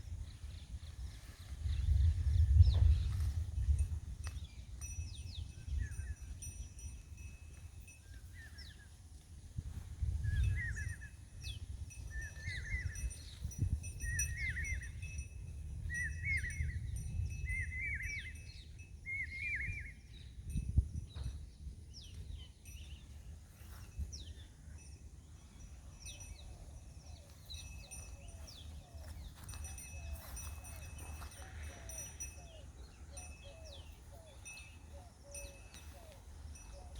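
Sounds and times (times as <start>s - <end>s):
birds high falling whistles: 10.1s - 36.9s.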